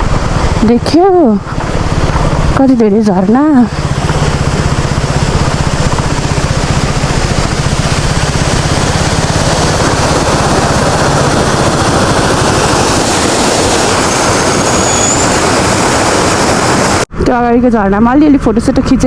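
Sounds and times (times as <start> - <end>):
loud rushing noise: 0.0 - 17.2
motorcycle engine hum: 0.0 - 19.0.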